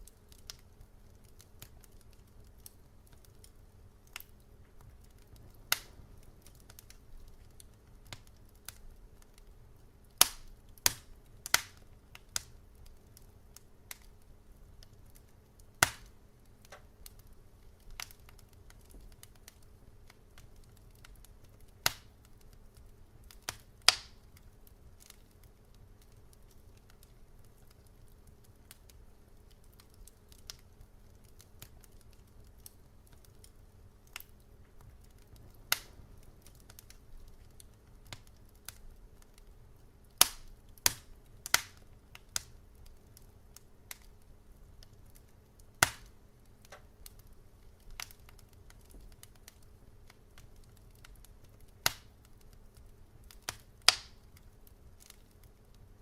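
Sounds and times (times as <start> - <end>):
low steady rumble: 0.0 - 55.0
wood fire crackling: 0.0 - 56.0.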